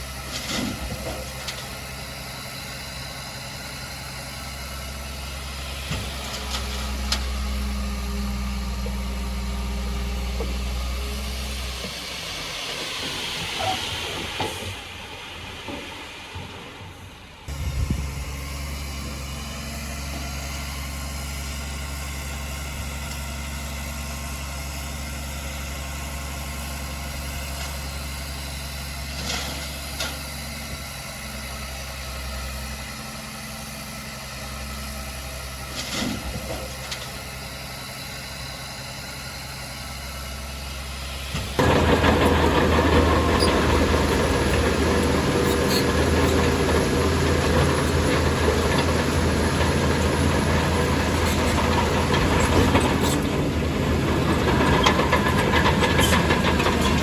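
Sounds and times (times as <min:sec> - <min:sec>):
diesel engine idling and roaring: 0:00.0 - 0:57.0.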